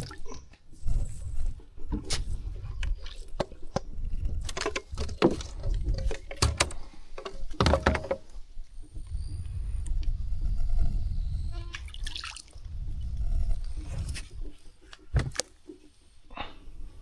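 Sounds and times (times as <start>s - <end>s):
handling clicks and rustles: 1.8s - 8.5s
low rumble: 12.6s - 14.4s.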